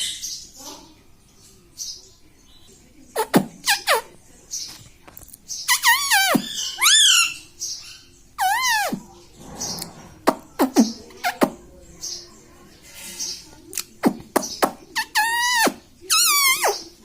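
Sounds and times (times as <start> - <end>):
parrot chirping and calling: 0.0 - 0.9, 5.5 - 11.5, 14.4 - 17.0.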